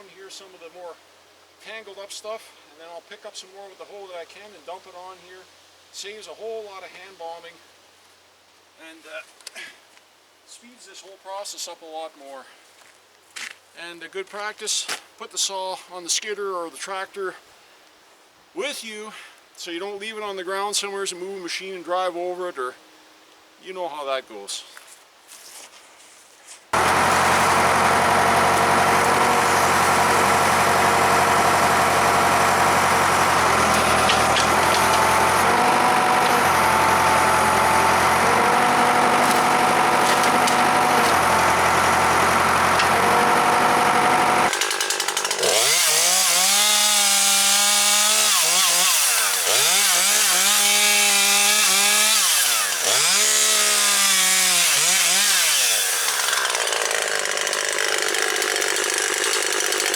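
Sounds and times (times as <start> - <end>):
chainsaw cutting brush: 26.7 - 59.9
engine running steadily: 26.8 - 44.5.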